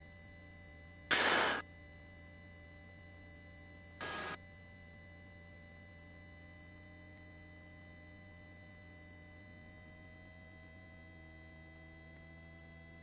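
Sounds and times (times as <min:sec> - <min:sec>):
faint steady hum: 0:00.8 - 0:05.0
bursts of hiss: 0:01.1 - 0:01.6, 0:04.0 - 0:04.4.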